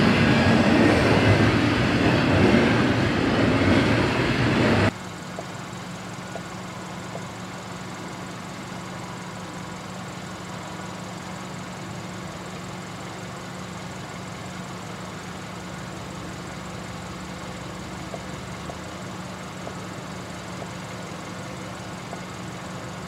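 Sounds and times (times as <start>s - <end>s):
distant diesel train drone: 0.0s - 23.0s
faint ticks: 22.0s - 22.6s.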